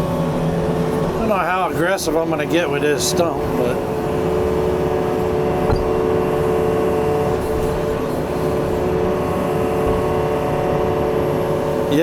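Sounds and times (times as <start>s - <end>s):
diesel engine running: 0.0s - 12.0s
brief knock: 5.7s - 5.9s.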